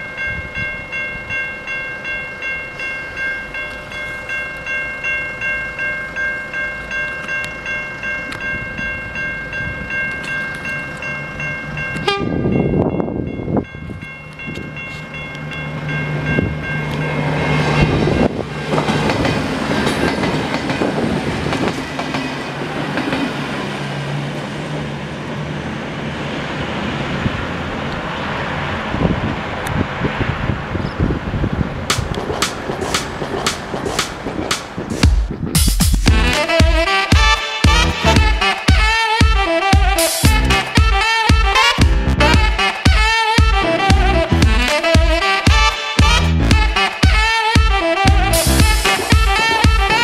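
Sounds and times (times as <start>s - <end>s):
level crossing bells ringing: 0.0s - 18.8s, 36.1s - 41.0s
diesel train engine humming: 6.8s - 50.0s
train rumble: 6.8s - 50.0s.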